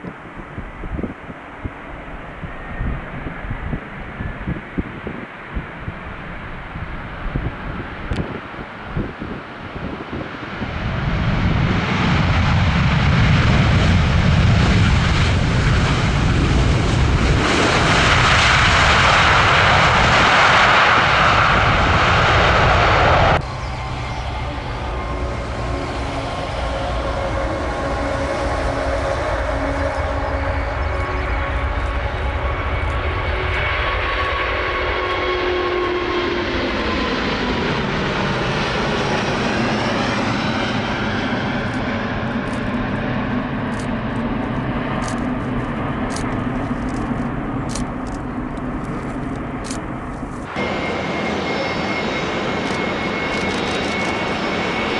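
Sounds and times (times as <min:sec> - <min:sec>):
jet engines roaring past: 0:00.0 - 0:54.9.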